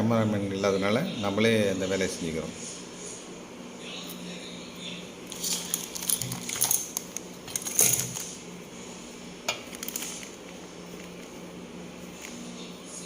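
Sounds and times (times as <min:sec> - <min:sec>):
faint steady hum: 0:00.0 - 0:13.0
metal parts clinking: 0:05.3 - 0:08.2.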